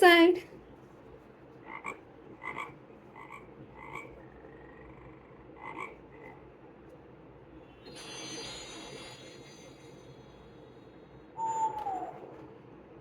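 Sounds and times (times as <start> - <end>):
frog croaking through small speaker: 1.6 - 6.6.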